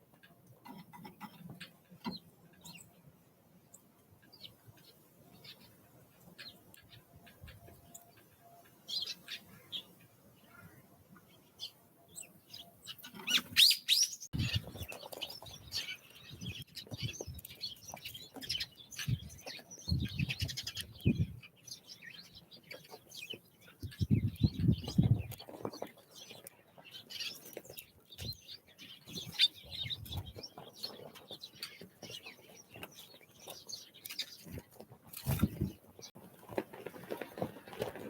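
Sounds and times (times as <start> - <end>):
songbirds chirping and calling: 0.0 - 38.0.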